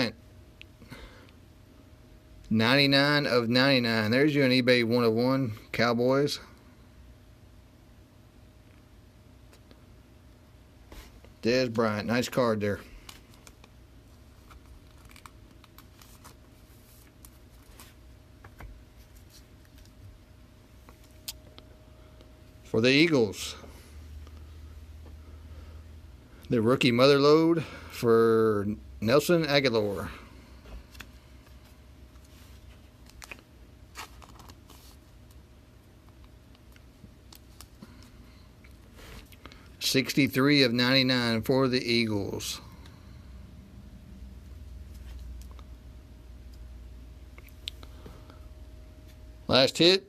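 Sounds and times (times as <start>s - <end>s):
faint steady hum: 0.0s - 50.0s
trading cards clicking and rustling: 12.8s - 20.0s, 33.0s - 35.4s.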